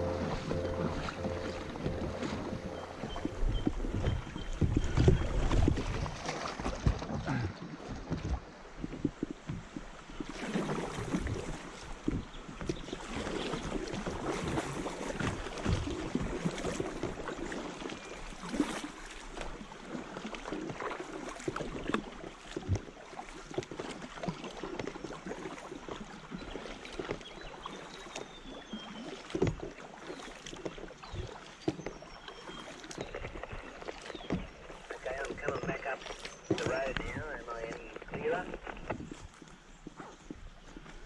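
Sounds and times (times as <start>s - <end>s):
paddle knocking against kayak: 0.0s - 5.9s, 33.2s - 37.1s
paddle splashing and dripping: 0.0s - 41.0s
water washing along hull: 0.0s - 41.0s.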